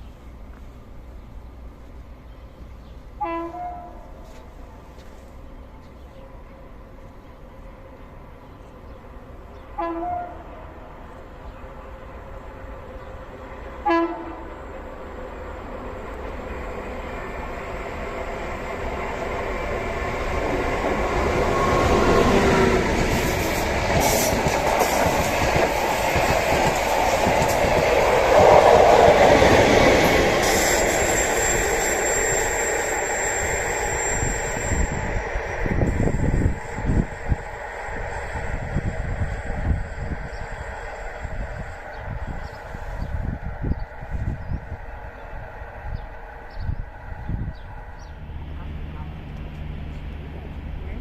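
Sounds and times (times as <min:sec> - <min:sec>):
train running past on rails: 0:00.0 - 0:51.0
train horn blast: 0:03.2 - 0:04.4, 0:09.7 - 0:10.8, 0:13.8 - 0:14.6.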